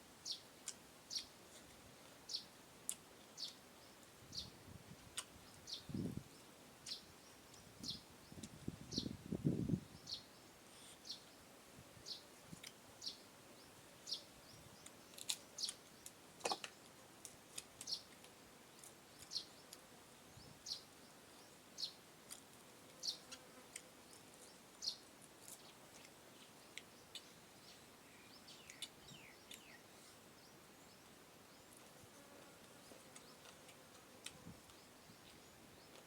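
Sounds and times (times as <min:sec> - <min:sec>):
small bird chirping: 0:24.1 - 0:31.8.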